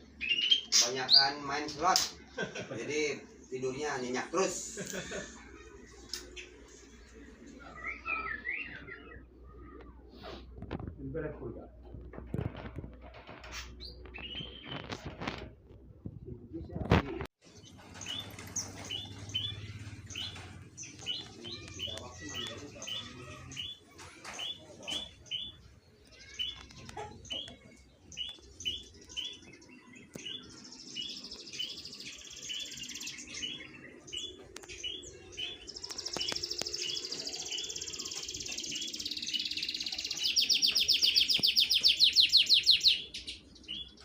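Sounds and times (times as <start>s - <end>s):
caged songbirds chirping: 0.0s - 44.0s
loud fast bird trill: 31.1s - 43.8s.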